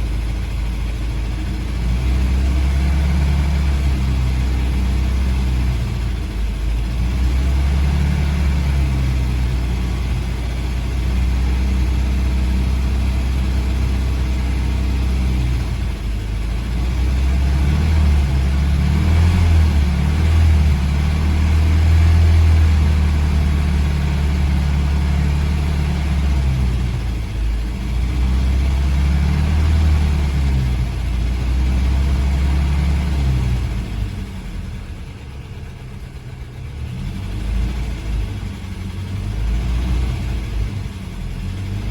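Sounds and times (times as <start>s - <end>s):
car engine running: 0.0s - 41.9s.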